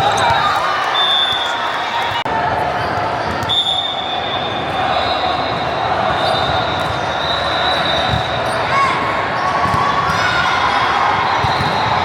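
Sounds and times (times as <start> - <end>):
crowd noise: 0.0 - 12.0
volleyballs bouncing and thudding: 11.4 - 11.9.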